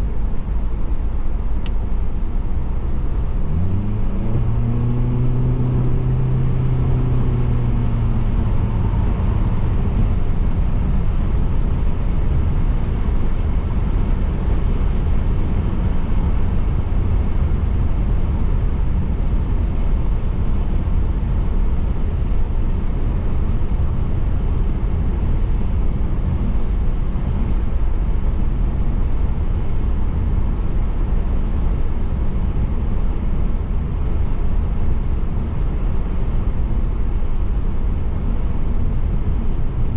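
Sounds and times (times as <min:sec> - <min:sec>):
humming engine tone: 0:00.0 - 0:17.4.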